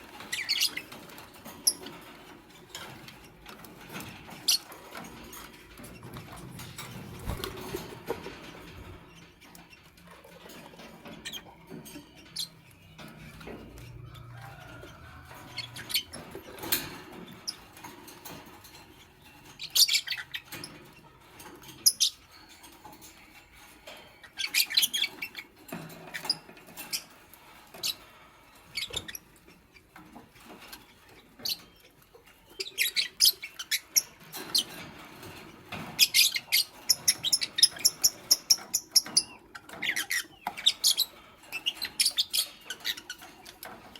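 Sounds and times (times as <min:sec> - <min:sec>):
lovebirds chirping: 0:30.8 - 0:34.7.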